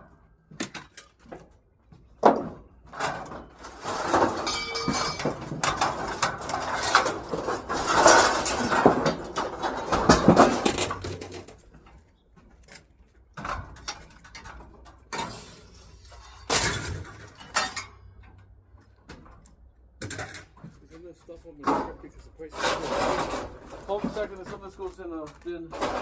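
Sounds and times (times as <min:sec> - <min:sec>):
scrap metal clattering: 0:02.2 - 0:11.9, 0:13.4 - 0:18.4, 0:21.6 - 0:26.0.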